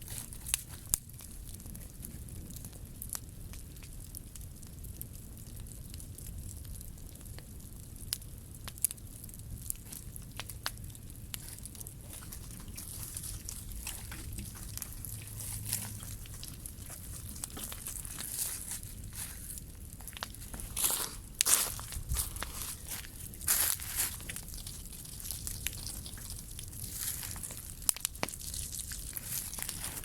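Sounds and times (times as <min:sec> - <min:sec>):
bonfire crackling and popping: 0:00.0 - 0:30.0
low steady rumble: 0:00.0 - 0:30.0.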